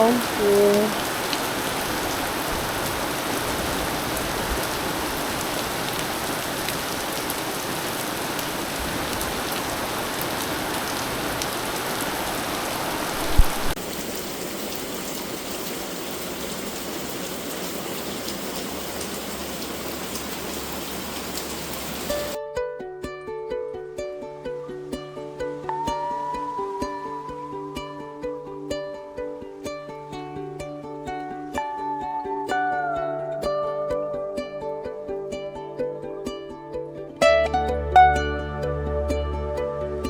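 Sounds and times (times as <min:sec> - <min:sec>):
heavy rain pouring: 0:00.0 - 0:22.4, 0:37.2 - 0:40.0.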